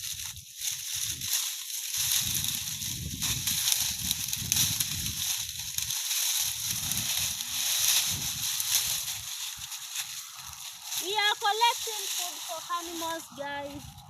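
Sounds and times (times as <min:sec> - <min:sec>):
leafy plants rustling: 0:00.0 - 0:14.0
low rumbles: 0:02.0 - 0:11.1.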